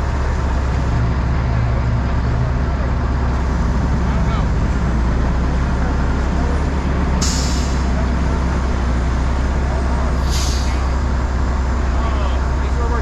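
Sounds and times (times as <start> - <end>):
heavy truck engine running: 0.0 - 13.0
air brake release hiss: 7.2 - 8.0, 10.2 - 11.0.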